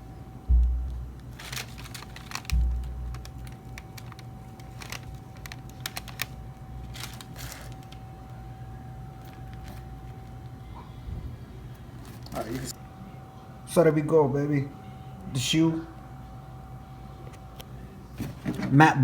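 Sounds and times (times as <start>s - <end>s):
dull low thumps: 0.0s - 5.2s
packaging rustles: 1.2s - 8.5s, 9.1s - 10.6s, 11.9s - 12.8s.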